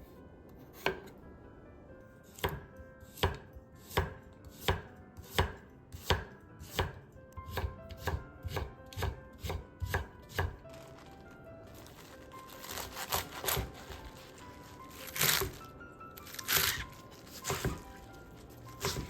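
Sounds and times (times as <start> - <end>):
knife chopping on cutting board: 0.8 - 1.1, 2.4 - 10.7, 12.6 - 19.0.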